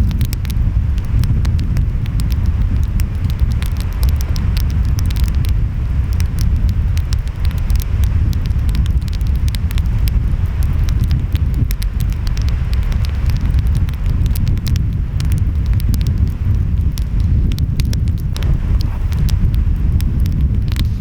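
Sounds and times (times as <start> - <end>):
wind: 0.0 - 21.0
wood fire crackling: 0.0 - 21.0.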